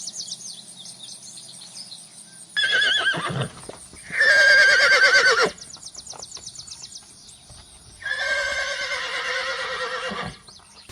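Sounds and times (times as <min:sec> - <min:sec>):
horse neighing: 0:02.6 - 0:05.6, 0:08.0 - 0:10.4.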